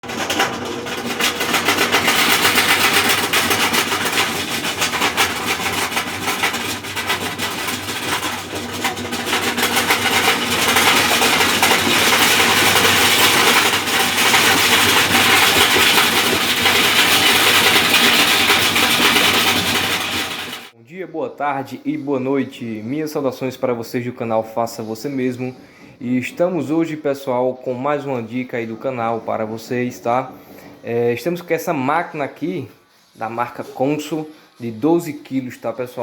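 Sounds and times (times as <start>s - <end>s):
washing machine grinding rattle: 0.0s - 20.8s.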